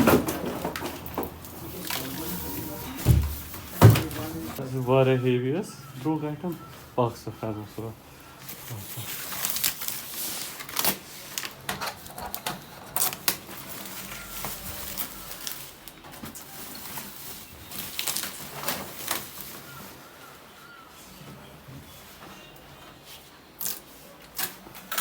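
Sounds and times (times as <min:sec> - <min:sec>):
packing material rustling: 0:00.0 - 0:04.6, 0:08.4 - 0:20.1.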